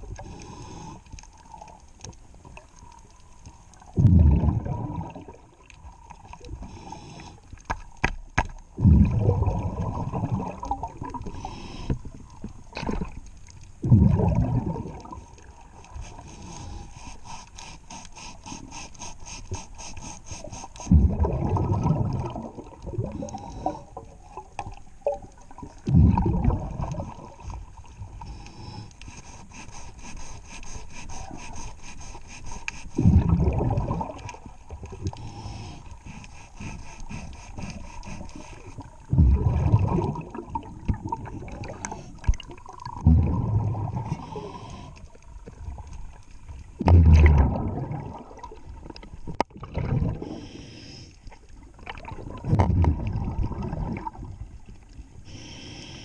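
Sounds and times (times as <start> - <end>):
underwater exhaled bubbles rumbling: 1.4 - 6.9, 8.6 - 16.8, 20.8 - 28.9, 33.0 - 36.0, 37.1 - 50.6, 51.4 - 55.3
faint rapid ticking and scraping: 34.3 - 39.0.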